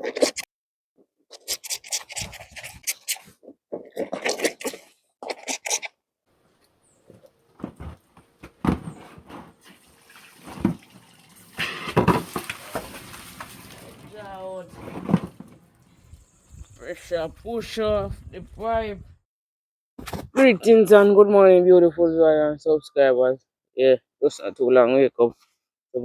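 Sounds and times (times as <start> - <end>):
water splashing from a pipe: 9.4 - 16.4.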